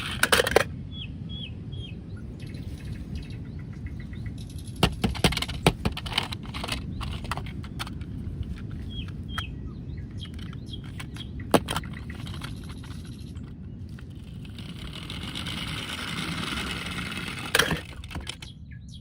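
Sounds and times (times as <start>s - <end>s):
birds chirping: 0.0s - 19.0s
steady outdoor noise: 0.0s - 19.0s
sharp clicks and knocks: 4.4s - 9.5s, 10.1s - 18.5s.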